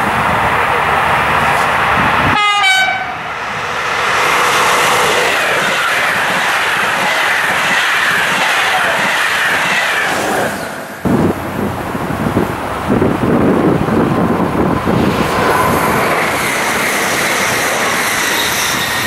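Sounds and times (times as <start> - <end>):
coaches rolling on rails: 0.0 - 19.0
diesel locomotive passing: 0.0 - 19.0
wind on microphone: 10.4 - 18.2.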